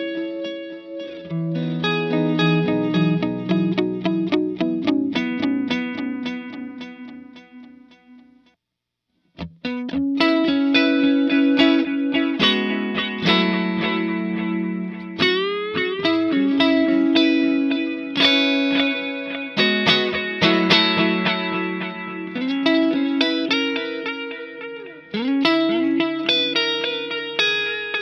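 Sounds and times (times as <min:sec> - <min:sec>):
electric guitar with delay echoes: 0:00.0 - 0:08.3, 0:09.6 - 0:28.0.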